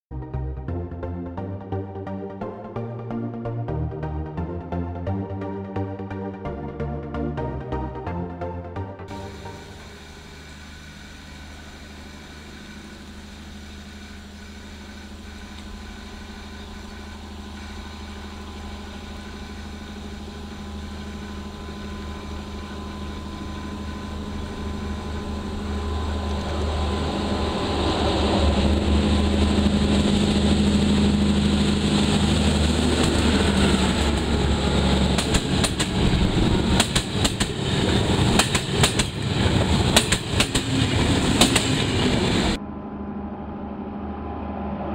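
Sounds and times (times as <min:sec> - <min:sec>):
diesel train engine hum: 0:00.2 - 0:44.9
train wheels clicking over rail joints: 0:29.0 - 0:42.6.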